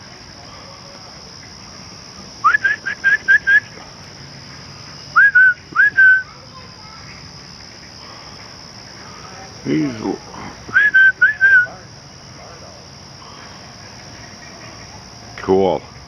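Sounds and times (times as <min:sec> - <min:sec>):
person whistling notes: 0:02.4 - 0:03.7, 0:05.2 - 0:06.2, 0:10.7 - 0:11.7.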